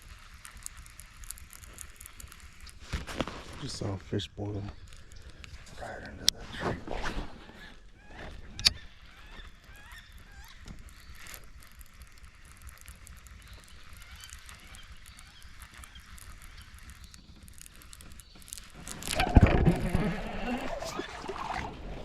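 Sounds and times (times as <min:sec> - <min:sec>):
faint birds calling: 0:04.7 - 0:06.3, 0:07.4 - 0:21.8
sharp click: 0:08.5 - 0:08.8.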